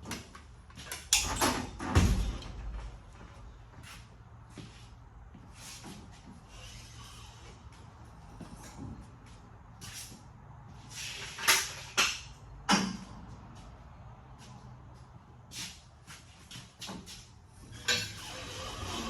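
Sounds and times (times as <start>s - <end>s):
sharp knocks and clanks: 1.1s - 3.2s.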